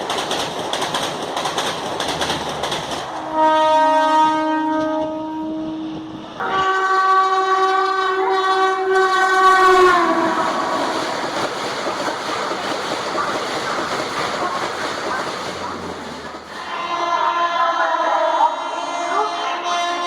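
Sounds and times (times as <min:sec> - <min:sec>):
coaches rattling over track: 0:00.0 - 0:04.0, 0:07.8 - 0:17.4
train horn: 0:03.1 - 0:11.2, 0:16.1 - 0:20.0.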